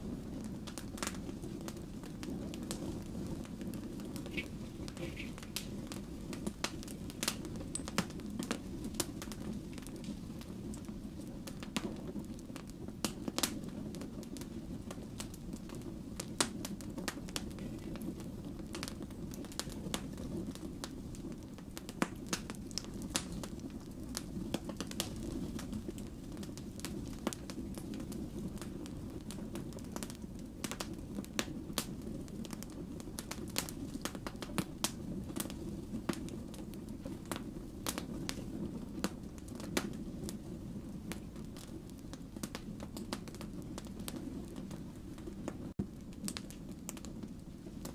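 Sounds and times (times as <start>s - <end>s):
low rumble of flame: 0.0s - 47.9s
wood fire pops and crackles: 0.0s - 47.9s.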